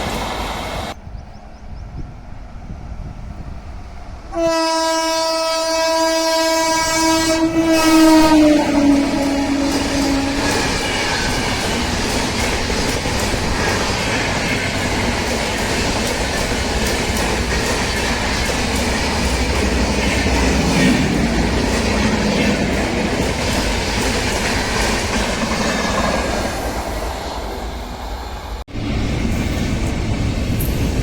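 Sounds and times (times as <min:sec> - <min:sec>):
train rushing past: 0:00.0 - 0:31.0.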